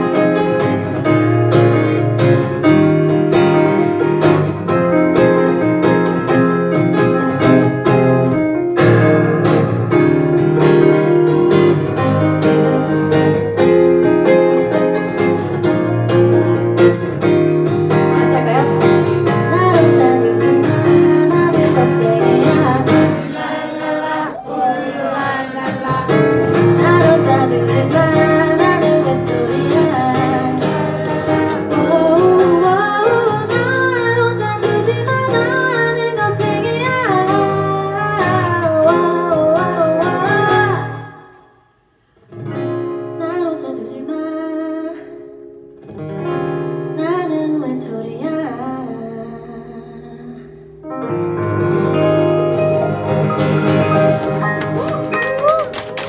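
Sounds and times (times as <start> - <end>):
acoustic guitar strumming chords: 0.0 - 41.4, 49.2 - 56.0
person singing: 18.0 - 41.2.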